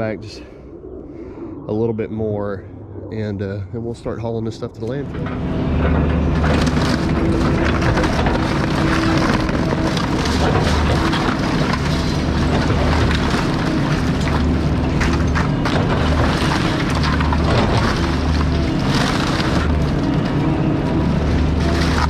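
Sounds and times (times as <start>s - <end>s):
excavator diesel engine running: 4.3s - 22.0s
debris cracking and clanking: 5.1s - 22.0s.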